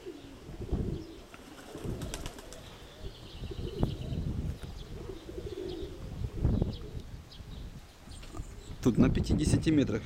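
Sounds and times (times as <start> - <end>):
pigeons cooing: 0.0 - 7.3
wind noise on microphone: 0.4 - 10.0.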